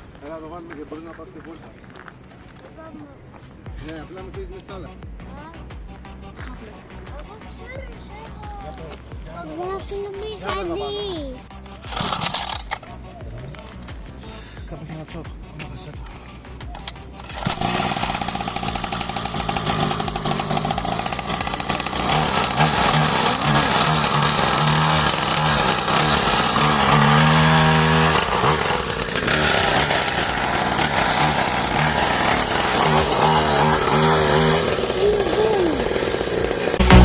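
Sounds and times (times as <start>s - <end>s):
small motorbike engine revving: 11.5s - 12.9s, 16.4s - 37.0s.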